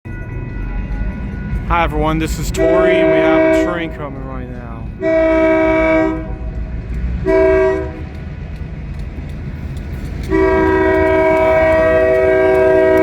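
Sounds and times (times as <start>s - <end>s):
train rumbling: 0.0s - 13.0s
locomotive air horn blasts: 2.5s - 4.1s, 5.0s - 6.5s, 7.2s - 8.1s, 10.3s - 13.0s.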